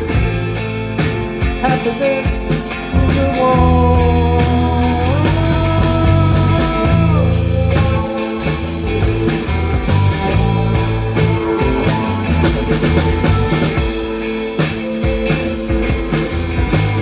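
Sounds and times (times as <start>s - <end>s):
bass guitar: 0.0s - 17.0s
drum kit steady beat: 0.0s - 17.0s.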